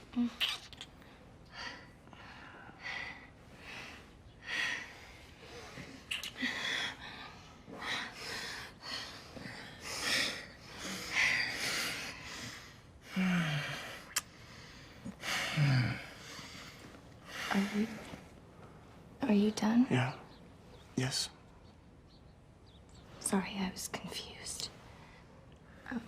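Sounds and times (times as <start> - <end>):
heavy breathing: 1.4 - 18.8
low moans: 13.0 - 14.2, 15.0 - 18.3.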